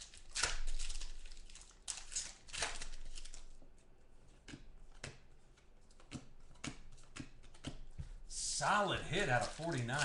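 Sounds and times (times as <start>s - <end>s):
cards and packaging rustling: 0.0s - 3.6s, 8.4s - 10.0s.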